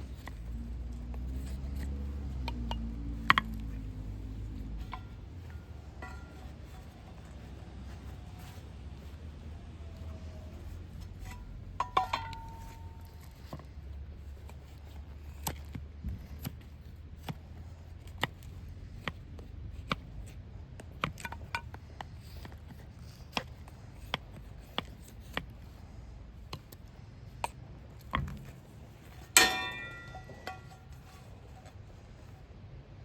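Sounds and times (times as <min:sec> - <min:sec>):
ringing metal clang: 0:11.2 - 0:13.2, 0:29.3 - 0:31.0.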